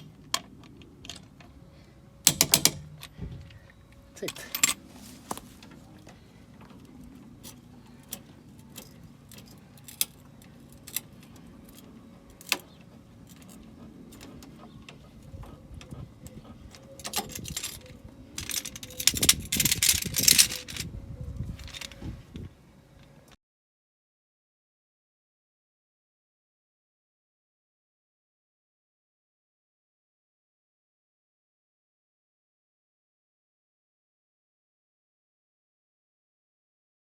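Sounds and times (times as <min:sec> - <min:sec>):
metal parts rattling and clattering: 0:02.2 - 0:03.3, 0:04.2 - 0:05.4, 0:17.0 - 0:20.9, 0:21.6 - 0:22.0
metal hand tools clinking: 0:17.1 - 0:20.8.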